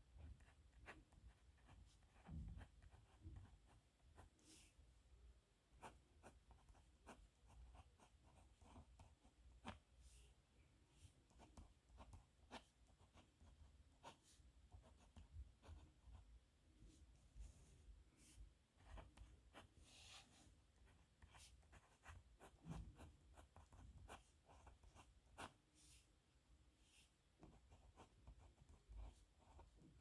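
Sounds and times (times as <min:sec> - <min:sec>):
pen scratching on paper: 0:00.3 - 0:04.6, 0:11.3 - 0:16.2, 0:18.8 - 0:25.6, 0:27.5 - 0:30.0.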